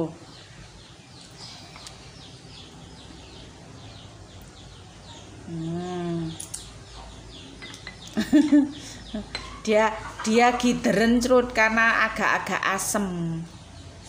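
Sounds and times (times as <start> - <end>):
small birds chirping: 0.0 - 14.0
person humming: 5.5 - 6.4.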